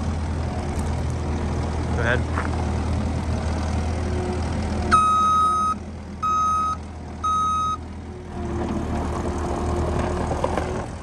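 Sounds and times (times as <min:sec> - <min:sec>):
engine humming at idle: 0:00.0 - 0:11.0
backup alarm beeping: 0:04.9 - 0:07.8.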